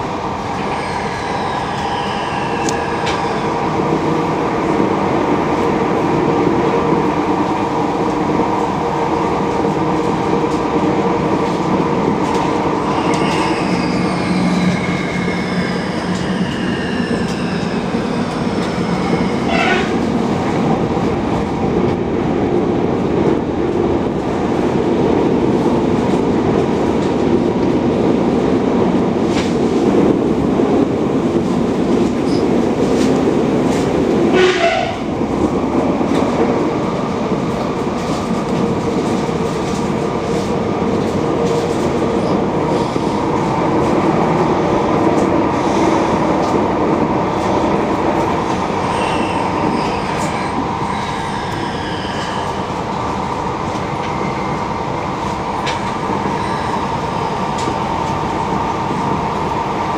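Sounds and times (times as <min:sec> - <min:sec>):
train rolling rumble: 0:00.0 - 0:59.9
high-pitched wheel squeal: 0:00.7 - 0:03.4, 0:12.9 - 0:20.0, 0:48.8 - 0:52.7.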